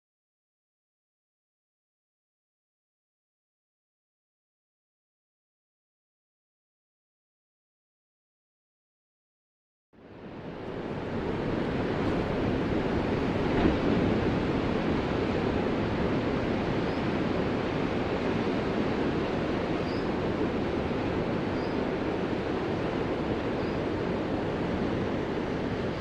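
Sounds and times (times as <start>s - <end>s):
ocean waves washing: 10.0s - 26.0s.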